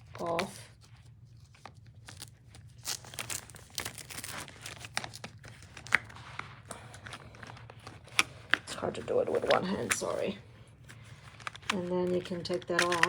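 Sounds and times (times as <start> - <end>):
velcro peeling apart: 1.4 - 8.6, 11.3 - 11.8.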